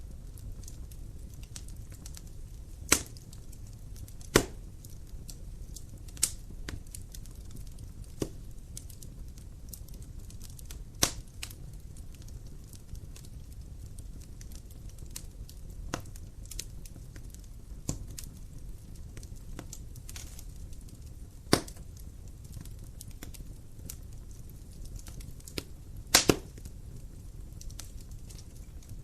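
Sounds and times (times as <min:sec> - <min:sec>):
fire popping: 0:00.0 - 0:29.0
wood fire crackling: 0:00.0 - 0:29.0.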